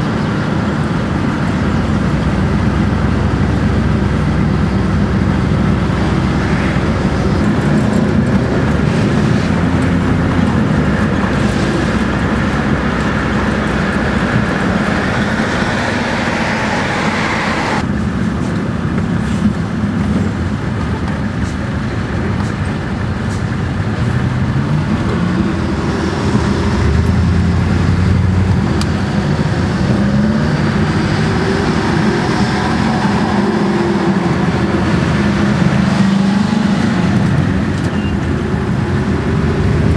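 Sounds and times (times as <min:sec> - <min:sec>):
heavy truck diesel engine revving: 0:00.0 - 0:17.9, 0:22.0 - 0:39.9.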